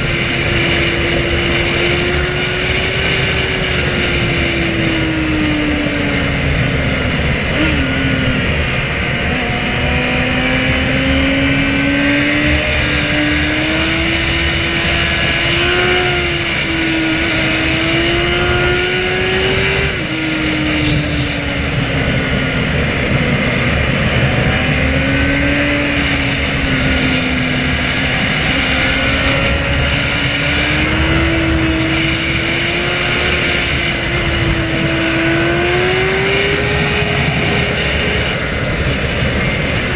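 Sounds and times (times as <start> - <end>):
motorcycle engine accelerating: 0.0 - 39.9
steady rushing noise: 0.0 - 39.9.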